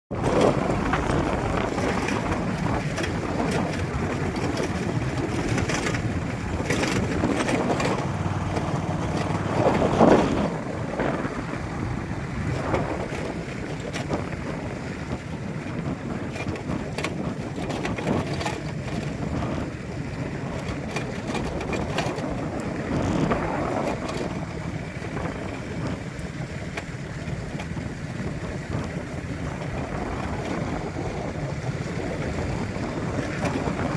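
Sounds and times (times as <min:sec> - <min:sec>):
vehicle rumble: 0:00.1 - 0:33.9
wind buffeting microphone: 0:00.1 - 0:33.9.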